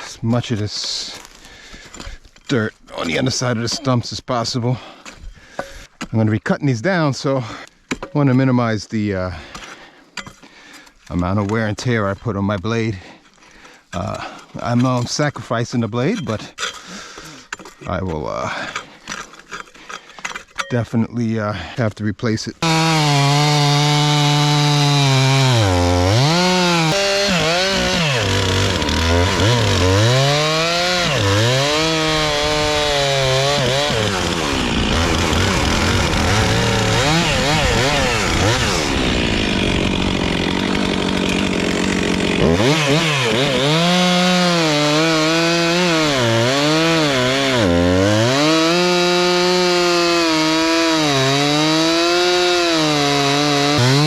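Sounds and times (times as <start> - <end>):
chainsaw cutting: 22.6 - 54.0.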